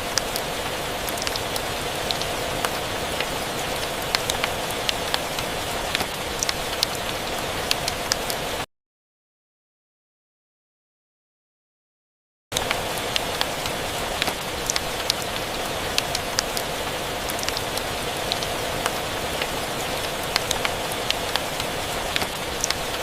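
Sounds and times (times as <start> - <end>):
steady rain hiss: 0.0 - 8.7, 12.5 - 23.0
wood fire crackling and popping: 1.1 - 7.0, 19.4 - 23.0.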